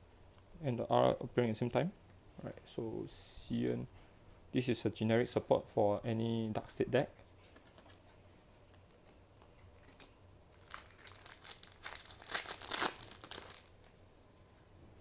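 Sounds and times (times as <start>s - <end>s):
foil wrapper crinkling and tearing: 9.8s - 13.9s.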